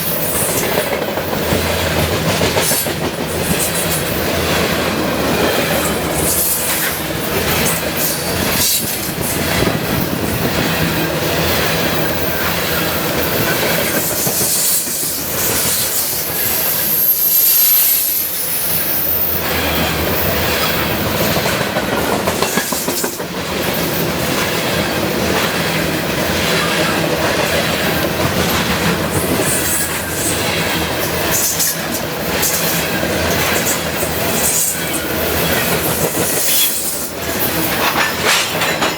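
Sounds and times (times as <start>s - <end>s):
wheels clicking over rail joints: 0.0s - 17.0s, 18.7s - 38.9s
train wheels rolling on rails: 0.0s - 38.9s
high wheel squeal: 12.0s - 21.1s, 33.5s - 38.1s.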